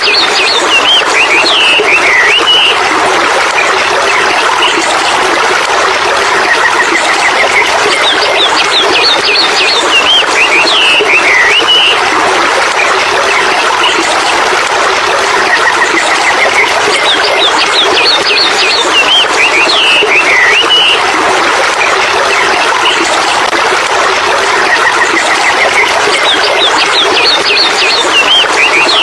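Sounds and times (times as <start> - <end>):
birds chirping: 0.0 - 2.9, 6.6 - 14.0, 15.7 - 21.1, 24.7 - 29.0.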